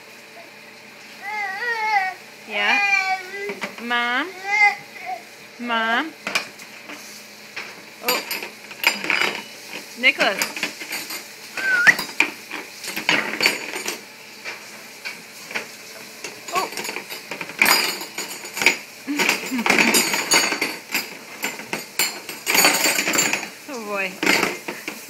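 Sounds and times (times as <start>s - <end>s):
cutlery clattering in dishwasher basket: 7.6s - 14.1s, 15.5s - 25.0s.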